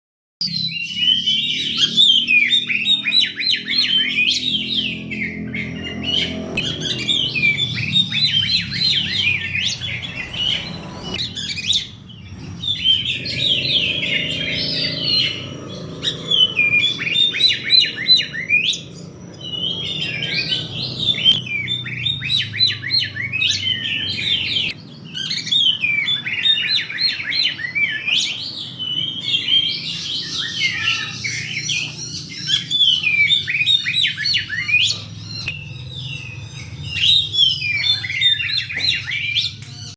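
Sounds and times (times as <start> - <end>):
songbird singing: 0.4 - 39.9.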